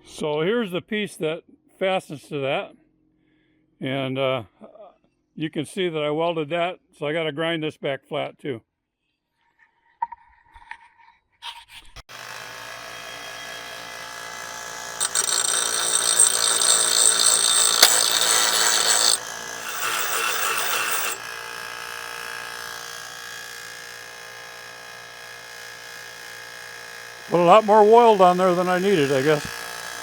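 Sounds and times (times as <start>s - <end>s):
grinder grinding steel: 12.1s - 24.4s, 26.9s - 30.0s
electric grinder motor whine: 12.1s - 30.0s.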